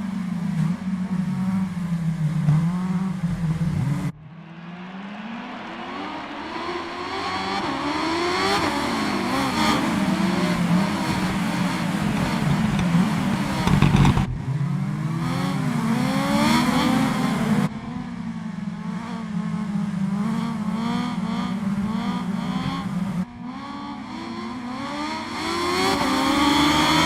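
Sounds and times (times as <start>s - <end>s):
motorcycle engine revving: 5.5s - 17.7s.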